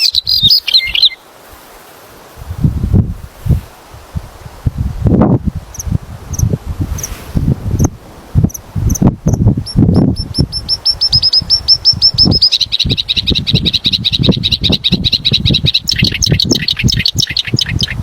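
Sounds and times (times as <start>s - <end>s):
songbird singing trills: 0.0s - 1.2s, 8.5s - 18.0s.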